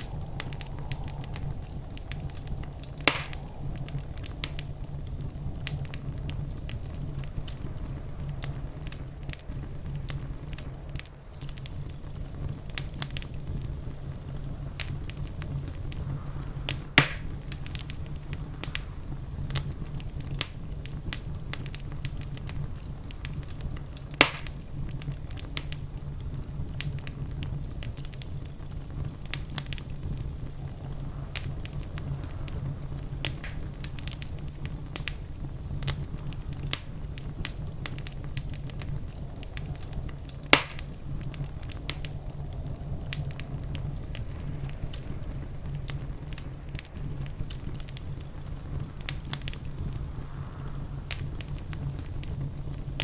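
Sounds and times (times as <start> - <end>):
sharp pops: 0.0 - 4.7, 16.7 - 18.0, 24.2 - 24.6, 40.4 - 41.0
wood fire crackling: 0.0 - 53.0.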